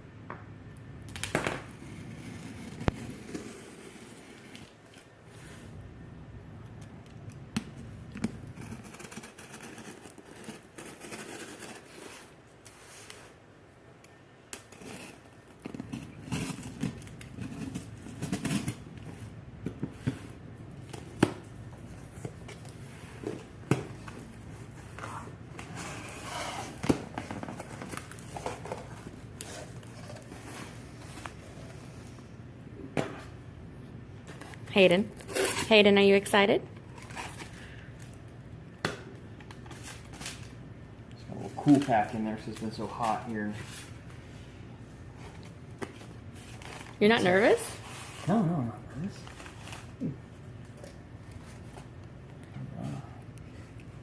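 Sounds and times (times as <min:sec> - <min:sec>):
packing tape cut and torn: 0:14.0 - 0:19.2, 0:34.3 - 0:35.8, 0:36.8 - 0:38.2, 0:41.3 - 0:43.4.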